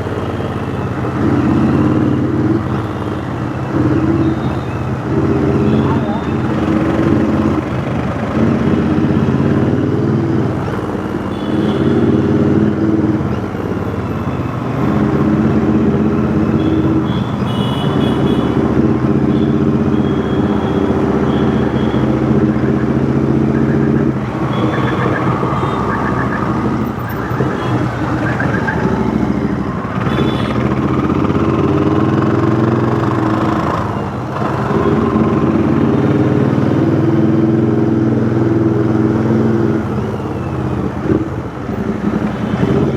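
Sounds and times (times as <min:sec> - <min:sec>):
motorcycle engine accelerating: 0:18.5 - 0:39.9
high beeping tones: 0:19.4 - 0:30.5.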